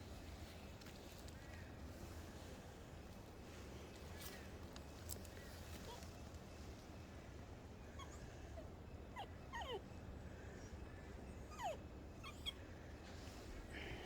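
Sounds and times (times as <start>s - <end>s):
dog whimpering: 8.0s - 9.9s, 11.5s - 12.6s.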